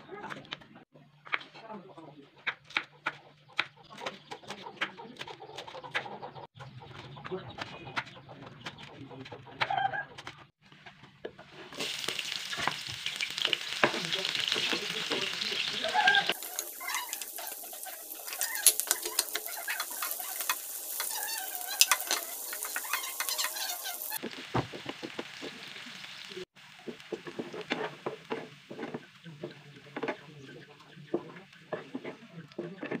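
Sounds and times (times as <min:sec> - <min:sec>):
food sizzling in hot oil: 0:11.7 - 0:29.2
metal utensils clicking: 0:16.2 - 0:24.2.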